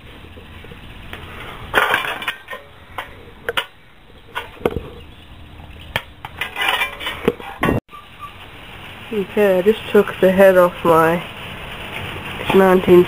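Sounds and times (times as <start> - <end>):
scraping rattle: 6.2 - 7.8
metal tools clinking: 6.4 - 7.8.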